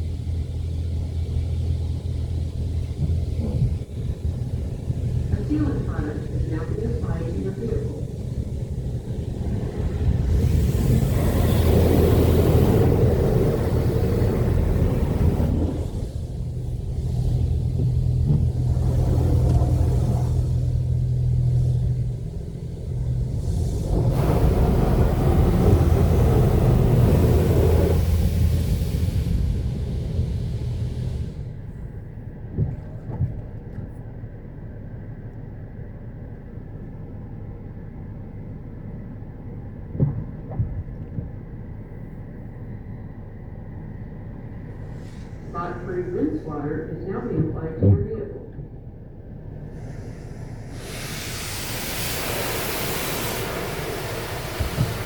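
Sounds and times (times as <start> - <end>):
car wash low rumble and hum: 0.0 - 55.0
spray hiss: 23.5 - 31.4, 49.7 - 55.0
dull thumps: 39.9 - 41.6.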